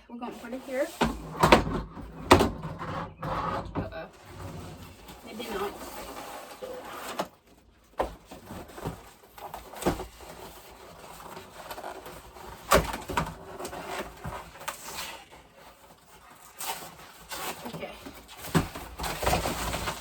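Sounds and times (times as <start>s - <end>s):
parts knocking and clattering: 0.9s - 5.4s
packaging rustling: 4.3s - 20.0s.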